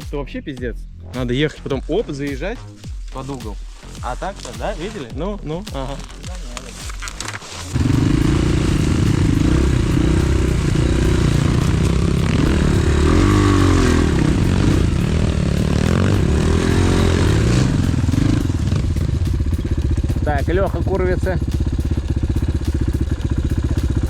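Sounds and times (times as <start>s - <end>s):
pit bike engine revving: 5.8s - 24.0s.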